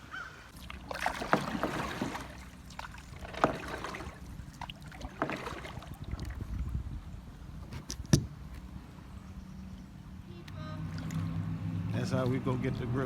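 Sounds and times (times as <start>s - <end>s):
water splashing: 0.5s - 6.7s, 10.6s - 13.0s.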